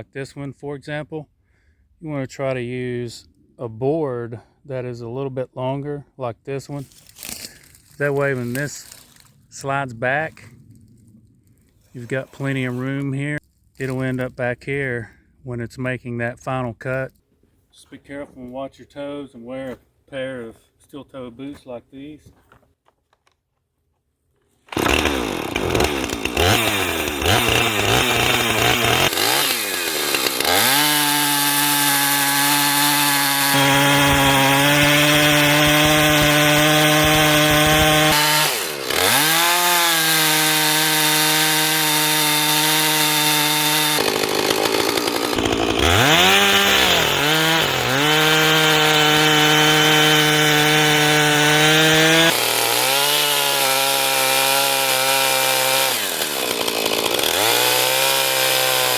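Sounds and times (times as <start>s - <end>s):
chainsaw cutting log: 6.9s - 9.3s, 24.6s - 58.9s.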